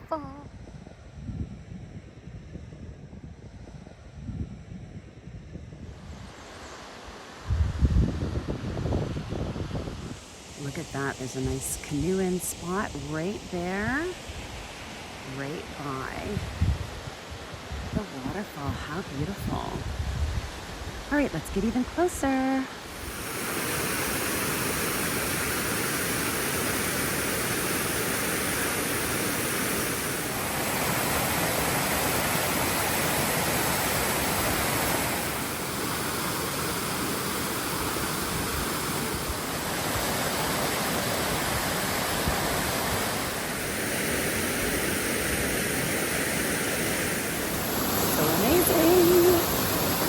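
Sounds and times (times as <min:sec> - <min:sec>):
waterfall rushing water: 0:22.7 - 0:50.0.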